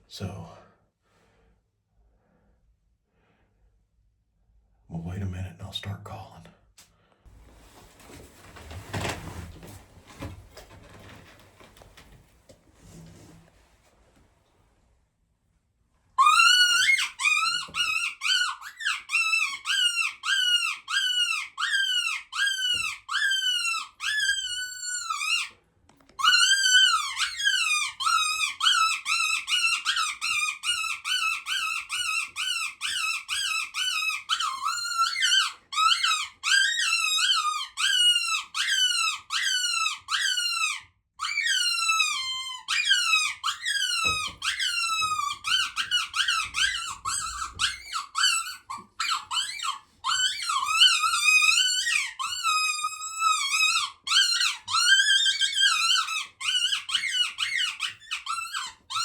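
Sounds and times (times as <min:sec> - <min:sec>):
predator call squeals: 0:16.2 - 0:25.5, 0:26.2 - 0:59.0.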